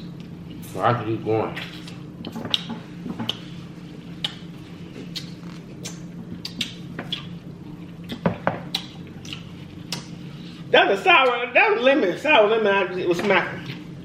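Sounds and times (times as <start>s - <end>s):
steady low hum: 0.0s - 14.0s
chewing and mouth noises: 1.5s - 10.7s.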